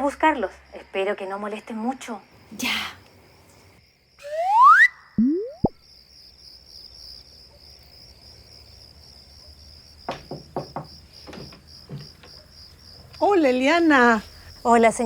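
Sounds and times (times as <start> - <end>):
crickets chirping: 0.0 - 15.0
rising whistle-like glide: 4.2 - 5.7
boing-like blips: 4.3 - 5.8
short knocks: 10.1 - 12.4.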